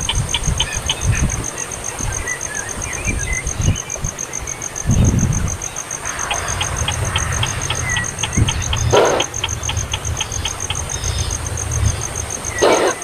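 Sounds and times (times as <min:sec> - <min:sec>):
low thumps and rumbles: 0:04.9 - 0:12.6
rapid high-pitched pulsing: 0:05.7 - 0:13.0.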